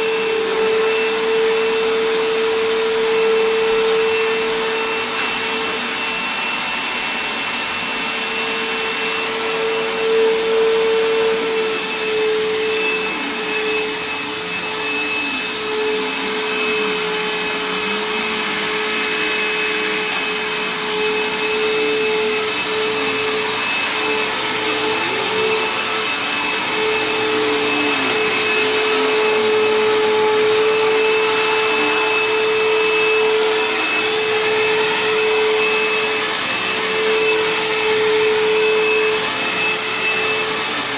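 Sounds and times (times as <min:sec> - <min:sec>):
vacuum cleaner motor whine: 0:00.0 - 0:40.9.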